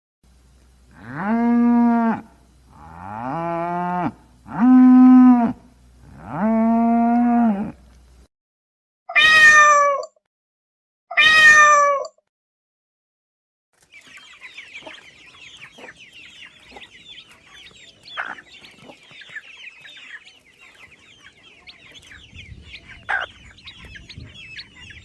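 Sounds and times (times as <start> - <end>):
cow mooing: 0.9 - 7.8
cat meowing: 9.1 - 10.1, 11.1 - 12.1.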